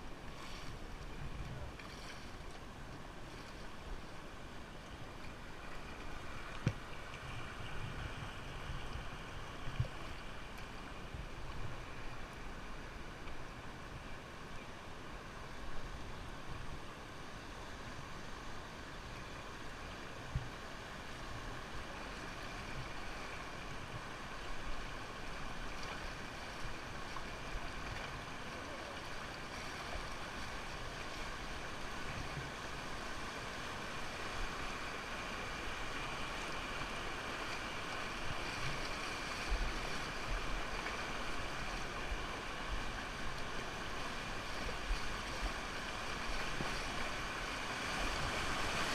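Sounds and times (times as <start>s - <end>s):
wind rumble on microphone: 0.0s - 4.2s, 6.3s - 12.3s
rushing river water: 0.0s - 48.9s.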